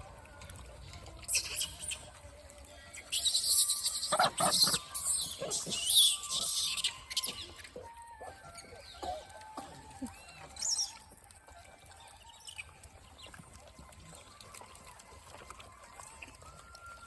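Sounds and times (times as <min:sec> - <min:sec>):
high-pitched animal chirps: 0:01.3 - 0:02.1, 0:02.9 - 0:11.1.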